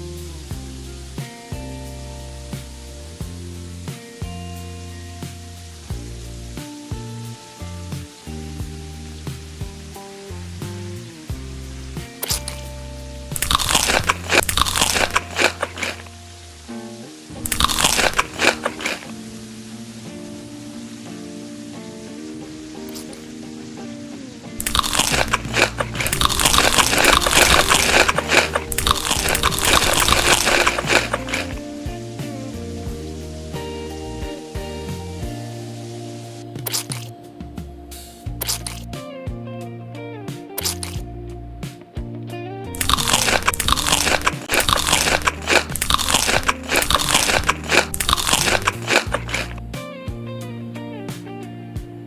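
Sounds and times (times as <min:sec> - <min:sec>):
person chewing crisp food: 0:12.2 - 0:12.6, 0:13.4 - 0:16.1, 0:17.5 - 0:19.2, 0:24.6 - 0:31.6, 0:38.4 - 0:38.8, 0:40.6 - 0:41.0, 0:42.8 - 0:49.6.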